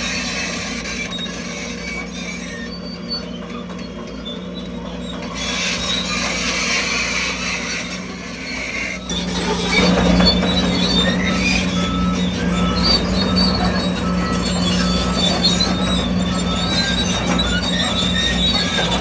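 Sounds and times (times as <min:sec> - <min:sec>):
bulldozer diesel engine running: 0:00.0 - 0:19.0
steel tracks squeaking and rattling: 0:00.0 - 0:19.0.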